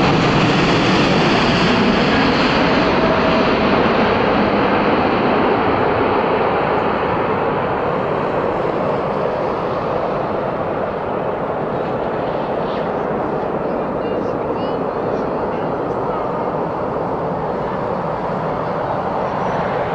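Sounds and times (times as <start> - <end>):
jet engine roar: 0.0 - 19.9.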